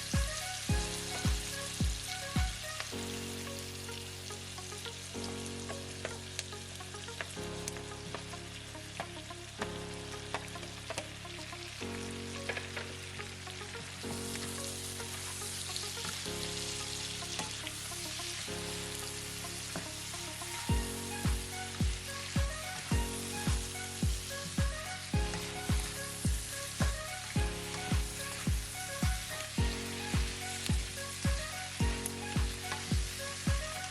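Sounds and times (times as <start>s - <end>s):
deep steady music beat: 0.0s - 2.7s, 19.8s - 33.9s
food sizzling in hot oil: 0.0s - 33.9s
music with held chords: 0.0s - 33.9s.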